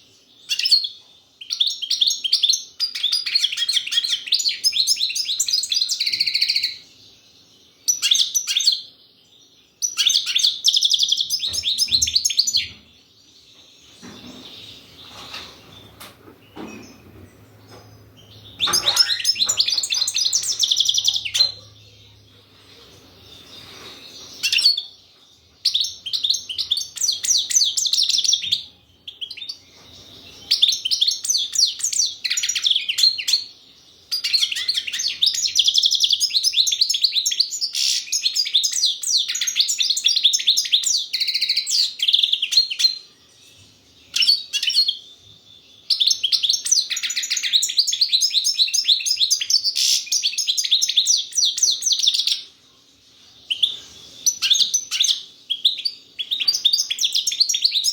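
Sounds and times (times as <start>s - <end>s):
goldfinch twittering song: 13.8s - 22.3s.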